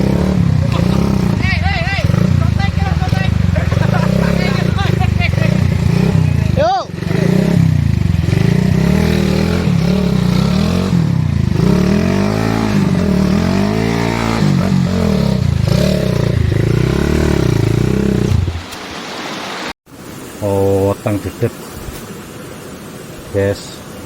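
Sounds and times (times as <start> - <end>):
motorbike engine revving: 0.0 - 18.7.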